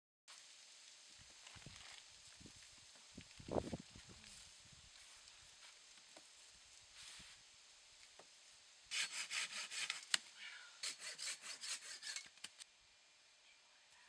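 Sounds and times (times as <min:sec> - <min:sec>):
hand saw cutting wood: 0:08.9 - 0:10.2, 0:10.8 - 0:12.6.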